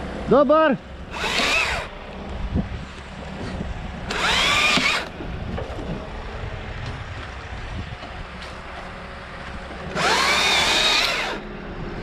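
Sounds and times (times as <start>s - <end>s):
low wind rumble: 0.0s - 12.0s
chainsaw revving: 1.1s - 1.9s, 4.1s - 5.1s, 9.9s - 11.5s.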